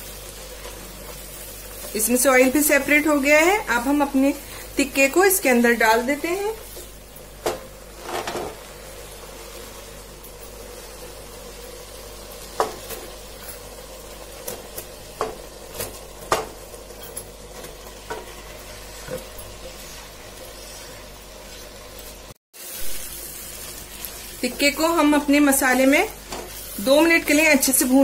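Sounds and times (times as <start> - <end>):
food sizzling in a pot: 0.0 - 28.0
spatula knocking and scraping pan: 25.6 - 26.6.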